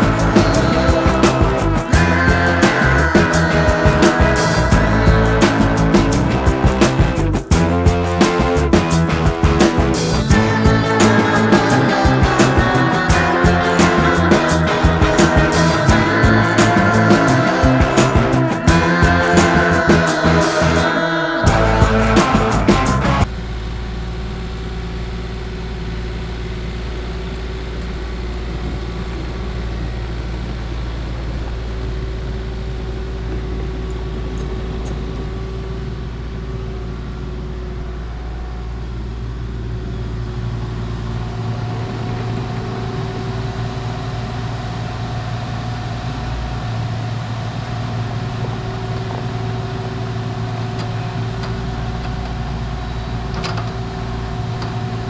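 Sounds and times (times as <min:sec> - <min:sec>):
vehicle engine running: 0:00.0 - 0:20.9.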